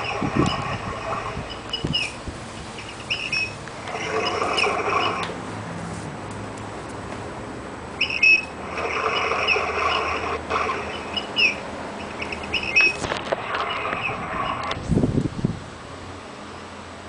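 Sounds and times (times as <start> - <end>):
birds whistling and chirping: 8.0 - 8.5, 11.0 - 13.0.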